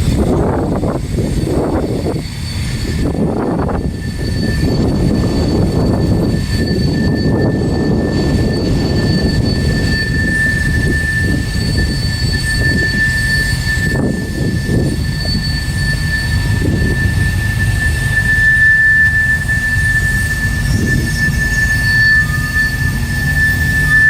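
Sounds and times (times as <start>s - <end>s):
freight train rumbling past: 0.0s - 24.0s
high-pitched wheel squeal: 0.0s - 24.0s.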